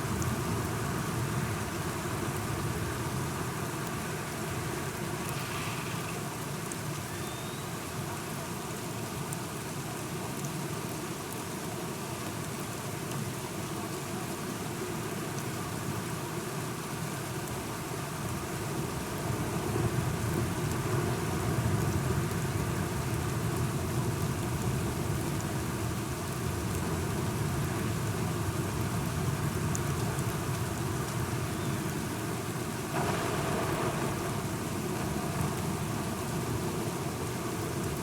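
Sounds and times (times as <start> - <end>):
steady rain falling: 0.0 - 38.0
distant thunder rumble: 32.9 - 38.0.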